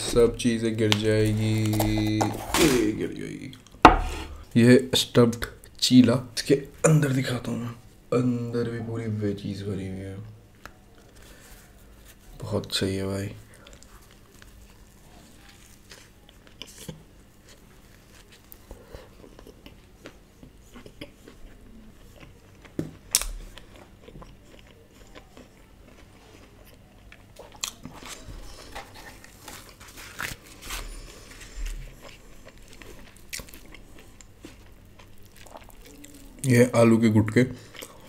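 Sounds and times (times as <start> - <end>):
wet chewing sounds: 13.5 - 36.5, 37.6 - 38.0.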